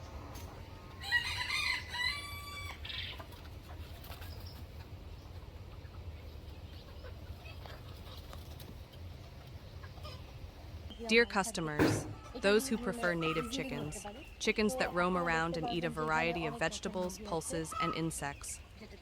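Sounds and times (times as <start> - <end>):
rooster crowing: 1.0 - 2.9.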